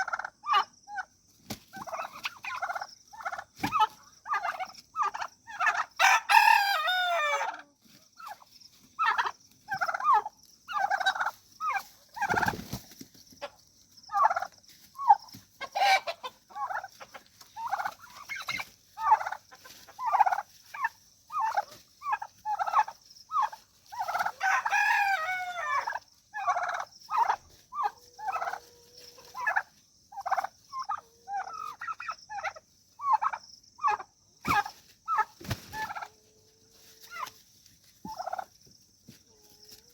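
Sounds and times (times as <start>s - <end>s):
turkey gobbling: 0.0s - 37.4s, 38.0s - 38.6s
rooster crowing: 6.0s - 7.6s, 24.2s - 26.0s.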